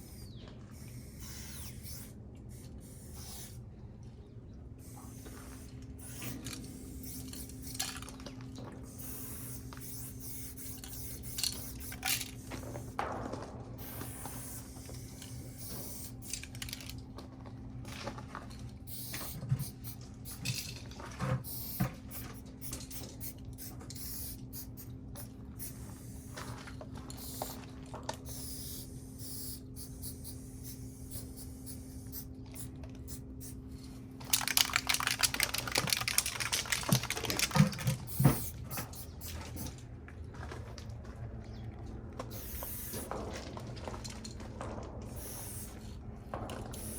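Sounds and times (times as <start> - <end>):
spray paint spraying: 0.0 - 3.6, 4.8 - 8.1, 8.9 - 13.0, 13.8 - 17.0, 18.8 - 20.8, 21.4 - 26.4, 27.1 - 33.6, 34.2 - 39.7, 42.3 - 43.1, 45.1 - 45.9
spray can clicks and knocks: 34.2 - 38.5.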